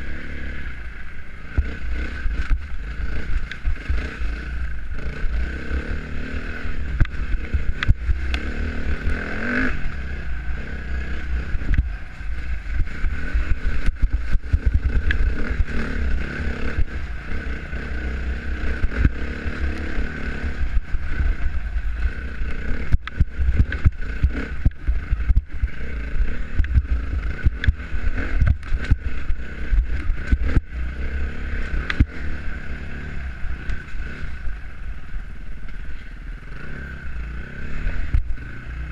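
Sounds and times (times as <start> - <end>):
dirt bike engine running: 0.0 - 38.9
wind buffeting microphone: 20.6 - 30.7.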